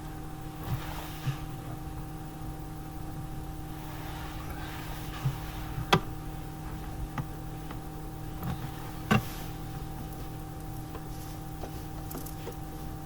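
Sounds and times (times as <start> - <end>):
steady low hum: 0.0 - 13.0
sharp clicks and knocks: 5.2 - 12.7.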